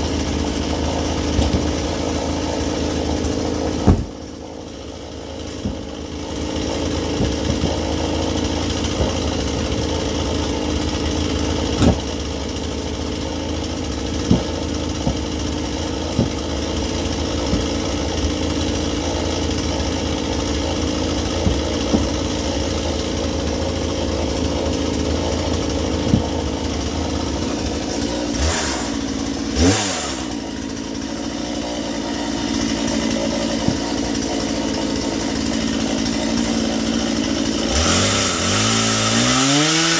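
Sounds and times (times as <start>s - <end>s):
chainsaw cutting log: 0.0s - 39.9s
short knocks: 3.8s - 4.2s.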